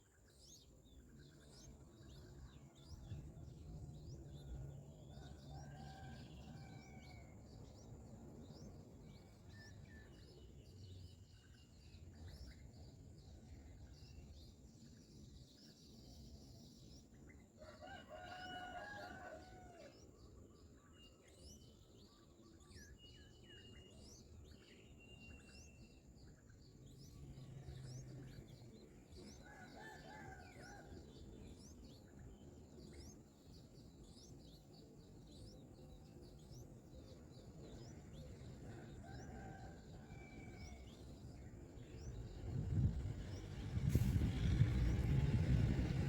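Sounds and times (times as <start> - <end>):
rooster crowing: 17.6 - 20.0, 29.4 - 31.1, 38.8 - 41.0
low rumble: 41.9 - 46.0.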